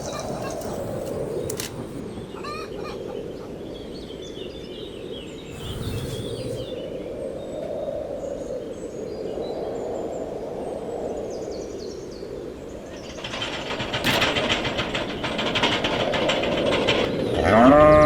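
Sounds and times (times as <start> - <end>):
fast mechanical rattling: 0.0 - 2.0, 5.5 - 6.8, 12.9 - 17.3
cow mooing: 17.3 - 18.0.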